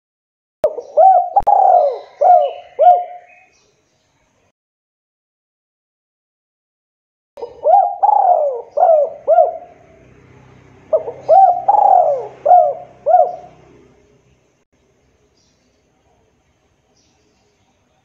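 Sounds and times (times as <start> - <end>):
dove cooing: 0.6 - 3.5, 7.4 - 10.2, 10.8 - 14.0.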